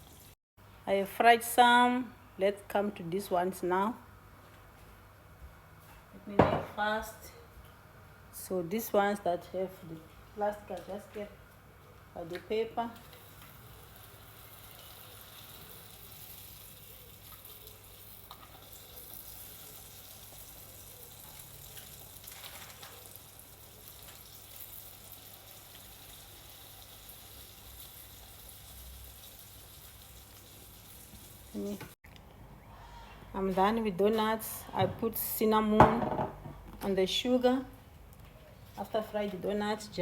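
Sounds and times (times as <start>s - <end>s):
doughnuts sizzling in hot oil: 13.0s - 32.0s.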